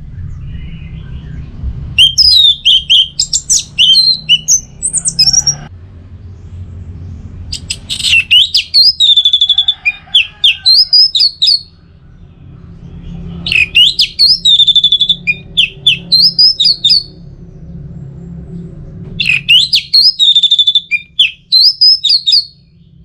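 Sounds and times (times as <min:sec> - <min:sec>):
thrush singing: 0:00.0 - 0:05.7, 0:07.5 - 0:17.3.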